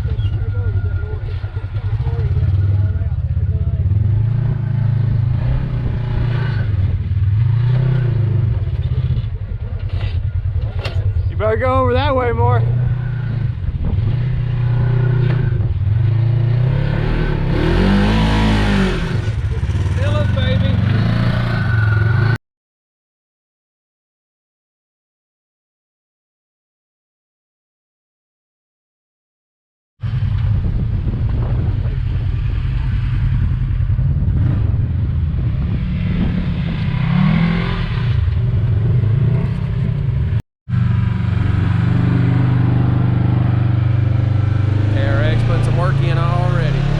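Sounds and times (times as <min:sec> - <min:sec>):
utility vehicle engine running: 0:17.4 - 0:22.4, 0:38.1 - 0:46.9.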